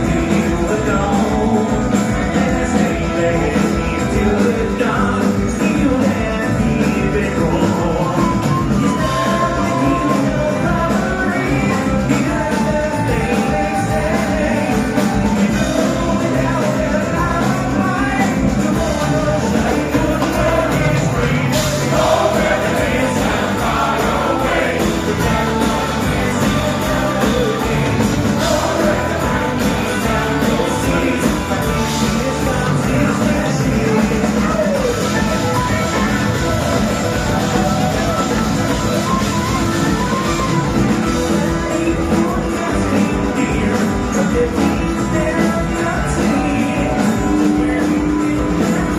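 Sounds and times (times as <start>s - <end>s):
bluegrass band playing: 0.0s - 48.9s
person singing: 0.0s - 48.9s.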